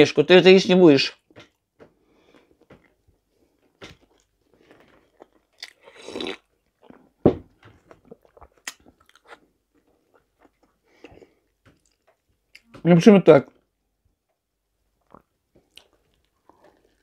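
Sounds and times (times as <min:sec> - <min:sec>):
crunching: 0:02.2 - 0:12.9
chewing with wet smacks: 0:07.7 - 0:12.7, 0:15.0 - 0:17.0.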